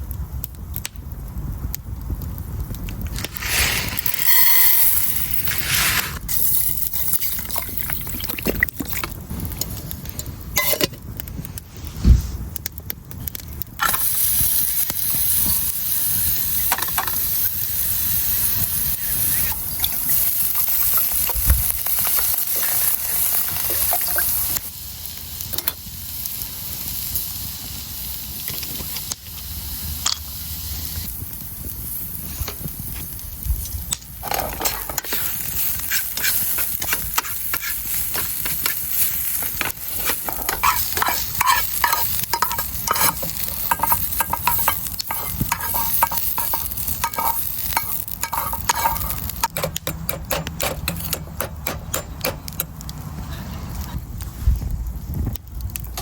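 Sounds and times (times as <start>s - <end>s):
food sizzling in a pan: 3.1s - 11.0s, 13.7s - 50.0s
cooking utensils clicking: 18.9s - 24.6s, 34.2s - 52.8s.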